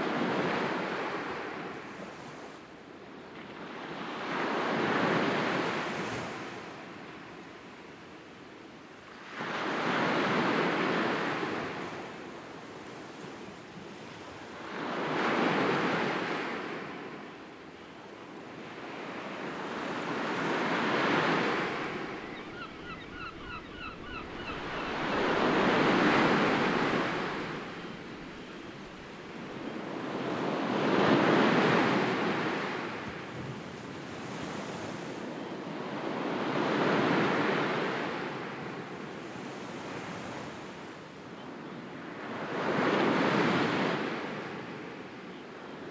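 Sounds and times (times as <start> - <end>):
sea waves washing in: 20.0 - 29.7
faint high chirps: 22.1 - 29.0.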